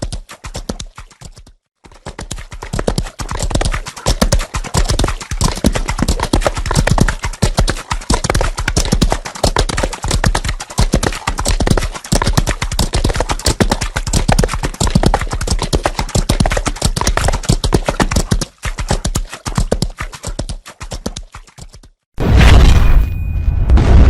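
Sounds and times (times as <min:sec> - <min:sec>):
horses galloping: 0:00.0 - 0:21.8.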